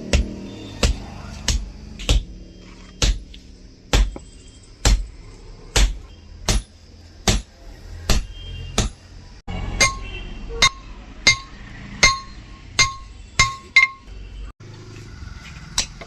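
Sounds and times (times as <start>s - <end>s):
hammer striking steel on anvil: 9.7s - 14.1s.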